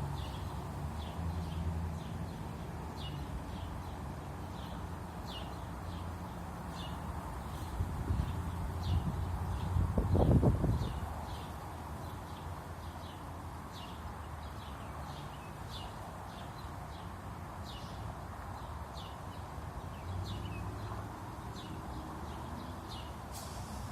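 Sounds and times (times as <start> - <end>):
bird chirping: 0.1 - 18.0.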